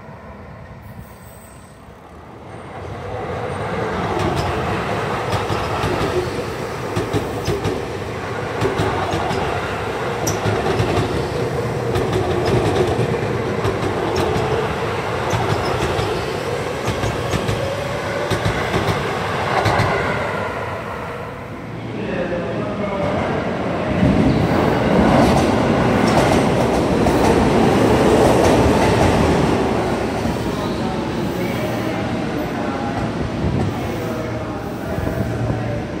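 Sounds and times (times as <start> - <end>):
electric train rumbling past: 0.0 - 36.0.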